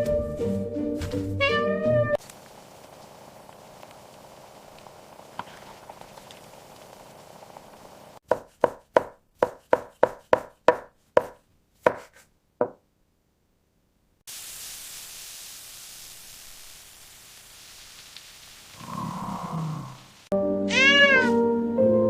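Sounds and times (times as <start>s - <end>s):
steady hiss: 2.2s - 8.2s, 14.3s - 20.3s.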